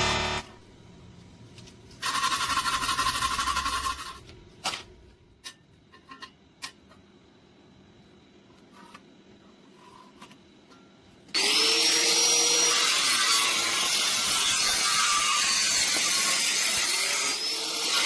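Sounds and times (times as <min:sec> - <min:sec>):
welder arc crackling: 0:00.0 - 0:00.6.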